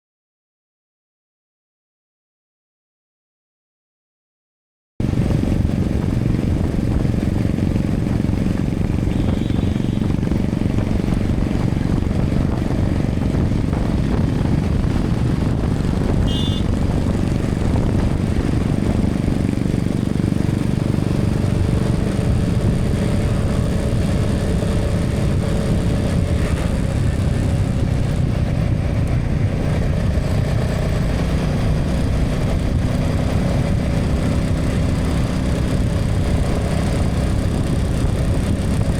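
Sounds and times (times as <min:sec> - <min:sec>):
motorcycle engine cruising: 0:05.0 - 0:38.9
wind and road noise: 0:05.0 - 0:38.9
short high beep: 0:09.1 - 0:10.0, 0:16.3 - 0:16.7.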